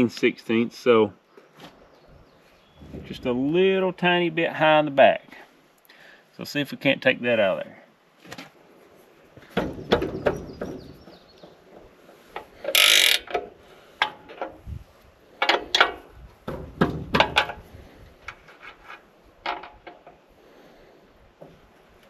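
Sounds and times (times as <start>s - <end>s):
metal clanks and knocks: 15.4s - 17.7s, 19.4s - 20.2s.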